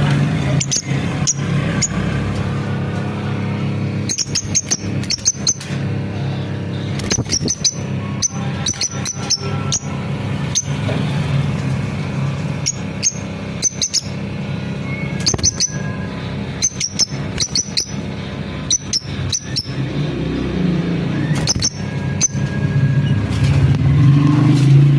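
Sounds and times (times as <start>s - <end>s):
lovebirds chirping: 4.0s - 11.1s, 12.2s - 22.5s.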